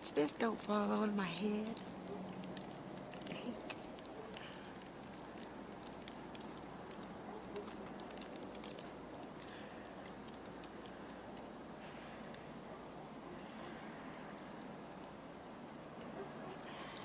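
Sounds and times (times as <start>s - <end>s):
snowflakes pattering: 0.0s - 11.6s
steady hiss: 0.0s - 17.0s.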